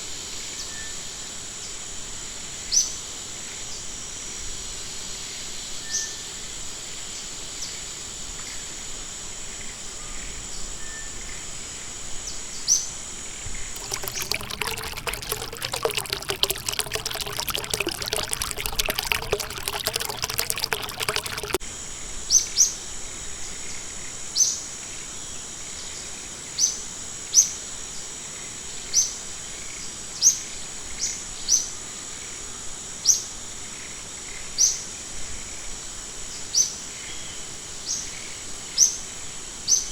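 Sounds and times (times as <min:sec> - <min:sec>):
splashing pouring water: 0:13.8 - 0:21.6.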